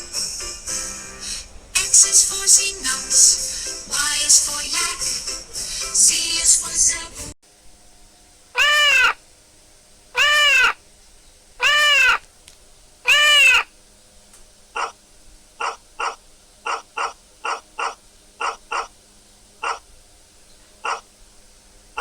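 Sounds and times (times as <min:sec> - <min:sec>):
animal calls rising and falling: 0:08.6 - 0:09.2, 0:10.2 - 0:10.8, 0:11.6 - 0:12.2, 0:13.0 - 0:13.7, 0:14.8 - 0:15.0, 0:15.6 - 0:19.0, 0:19.6 - 0:19.9, 0:20.8 - 0:21.1
short animal calls: 0:08.6 - 0:09.2, 0:10.2 - 0:10.8, 0:11.6 - 0:12.3, 0:13.0 - 0:13.7, 0:14.7 - 0:15.0, 0:15.6 - 0:19.0, 0:19.6 - 0:20.0, 0:20.7 - 0:21.1.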